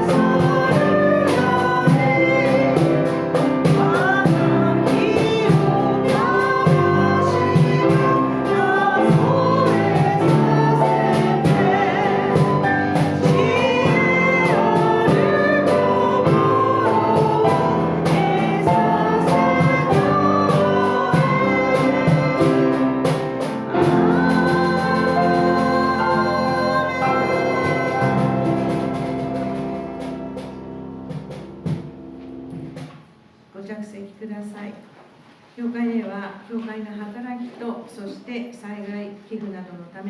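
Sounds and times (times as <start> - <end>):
voices singing a hymn: 0.0 - 30.7
organ accompaniment: 0.0 - 33.0.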